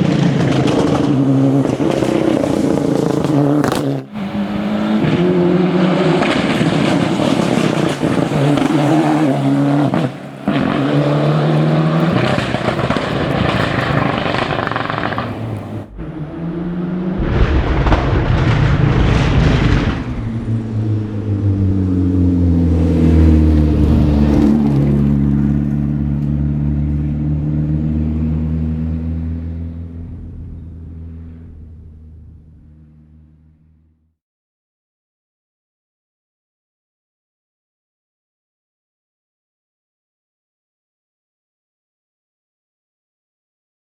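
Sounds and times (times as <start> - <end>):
rally car engine at full throttle: 0.0 - 34.0.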